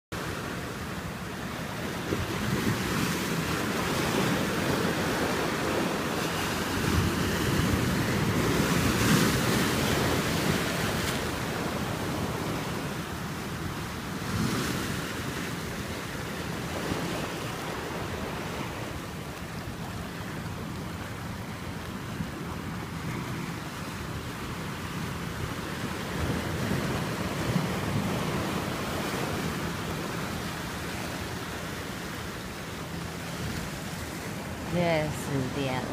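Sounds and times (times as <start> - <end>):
surf breaking on beach: 1.5 - 21.6.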